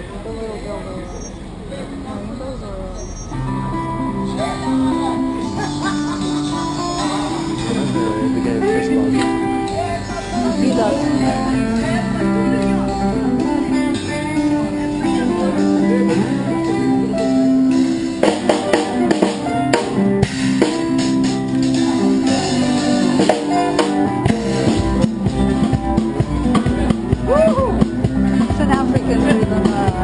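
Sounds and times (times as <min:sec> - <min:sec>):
guitar playing: 0:02.3 - 0:30.0
drums and percussion: 0:05.4 - 0:30.0.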